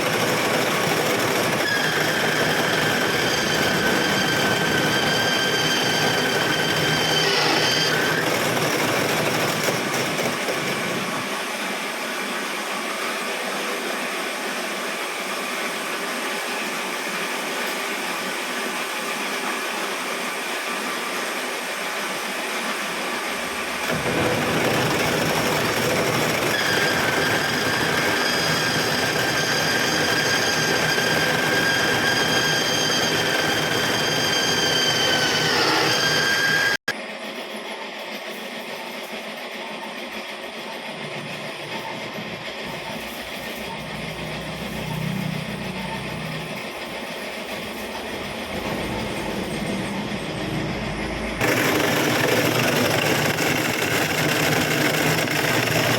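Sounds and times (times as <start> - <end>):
machine working metal: 0.0 - 12.5, 23.2 - 55.9
high whine: 42.8 - 55.9.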